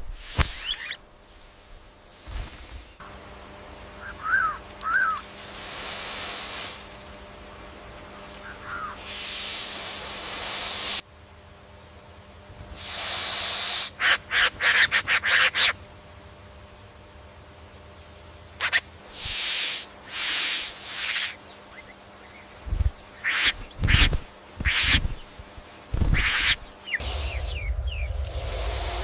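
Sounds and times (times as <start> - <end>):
bird rasping cries: 4.0 - 5.3, 8.4 - 9.7, 12.8 - 15.8, 18.6 - 28.2.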